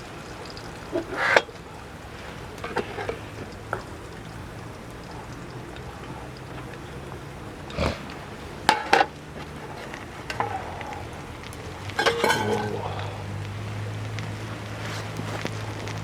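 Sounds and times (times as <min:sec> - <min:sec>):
metal cookware clinking: 0:11.8 - 0:13.4.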